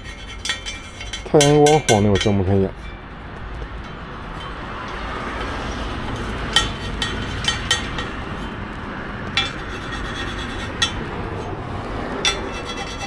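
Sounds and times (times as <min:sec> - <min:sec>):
metal utensils clinking on pans: 0:00.0 - 0:03.0, 0:04.4 - 0:08.4, 0:12.2 - 0:13.0.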